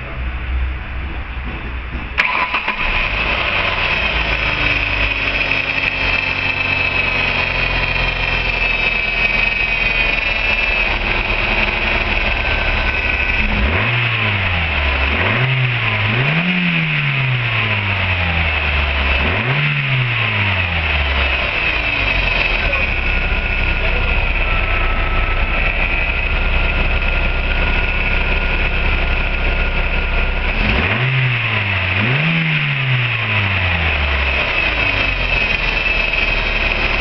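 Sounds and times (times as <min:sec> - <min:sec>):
car engine starting and idling: 0:00.0 - 0:37.0
engine revving: 0:01.0 - 0:37.0.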